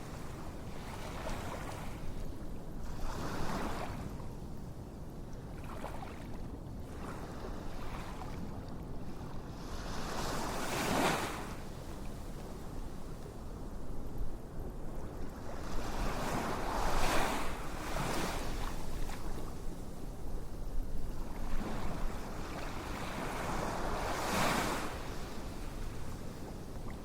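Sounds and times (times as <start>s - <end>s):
ocean waves washing on shore: 6.9s - 13.6s, 14.4s - 27.0s.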